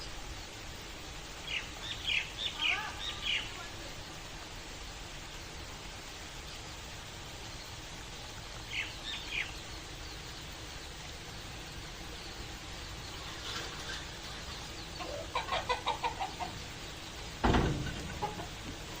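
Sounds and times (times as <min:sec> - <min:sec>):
rain hissing: 0:00.0 - 0:19.0
chickens clucking: 0:11.4 - 0:19.0
loud thump: 0:17.4 - 0:18.4.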